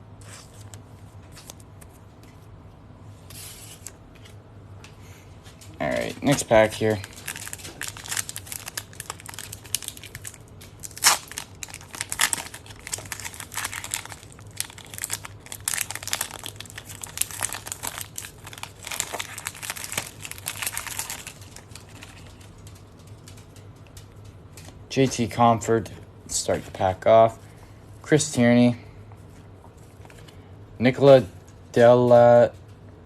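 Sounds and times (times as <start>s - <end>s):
plastic wrapper tearing and crinkling: 5.8s - 23.0s.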